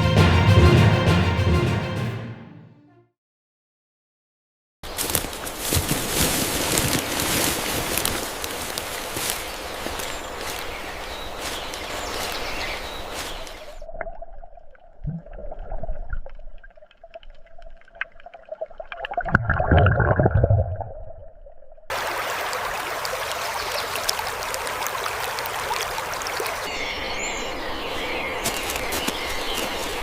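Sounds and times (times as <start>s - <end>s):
running water: 21.9s - 26.9s.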